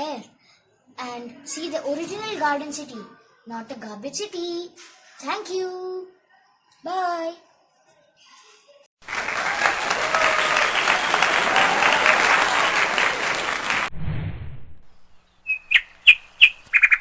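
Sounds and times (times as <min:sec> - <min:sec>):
crowd applause: 0:09.0 - 0:13.9
low rumble: 0:13.9 - 0:15.5
bird chirping: 0:14.8 - 0:17.0.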